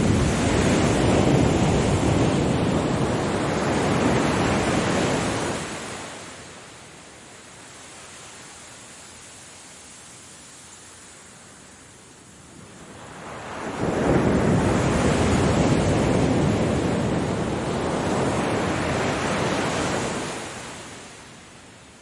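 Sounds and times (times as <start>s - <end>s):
ocean wave breaking: 0.0s - 6.6s, 12.8s - 21.2s.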